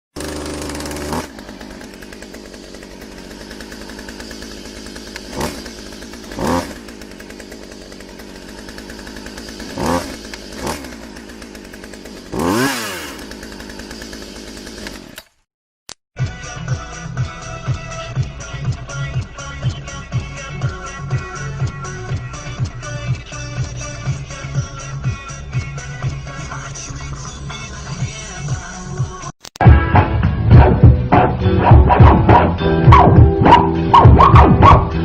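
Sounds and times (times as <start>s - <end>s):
small motor pulsing drone: 0.2s - 15.1s.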